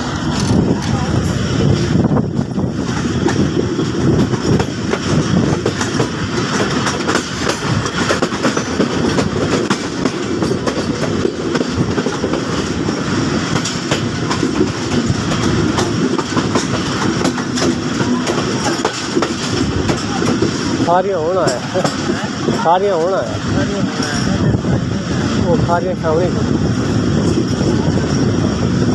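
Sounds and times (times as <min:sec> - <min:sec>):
wheel clatter on track: 0:00.0 - 0:24.7
train rumble: 0:00.0 - 0:28.9.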